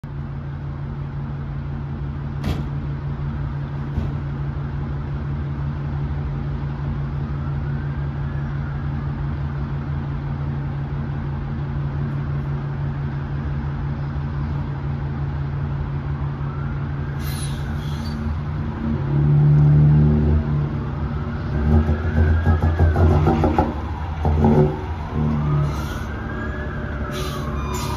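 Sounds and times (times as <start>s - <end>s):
diesel engine revving: 17.2s - 27.9s.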